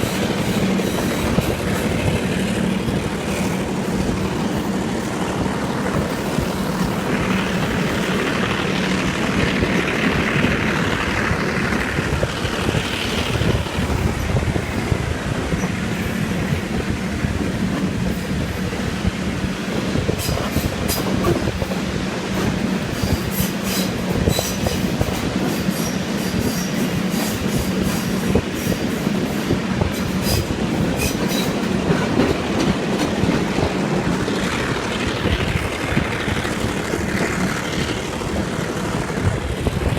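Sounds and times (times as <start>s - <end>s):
diesel locomotive engine drone: 0.0s - 39.9s
wheel-on-rail noise: 0.0s - 39.9s.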